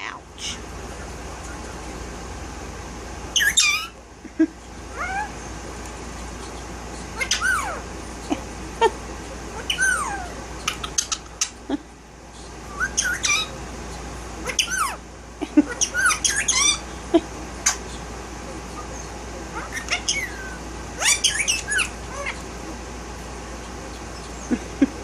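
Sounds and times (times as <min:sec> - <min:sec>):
parakeet chirping and whistling: 0:03.3 - 0:04.0, 0:07.2 - 0:07.8, 0:09.6 - 0:11.6, 0:12.7 - 0:13.5, 0:14.5 - 0:15.0, 0:15.7 - 0:16.8, 0:19.6 - 0:22.4.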